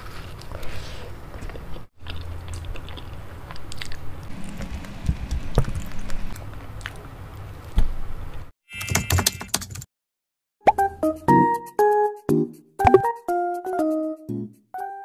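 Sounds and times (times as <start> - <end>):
person biting and chewing food: 0.0 - 7.8
wet mouth sounds: 1.4 - 7.2.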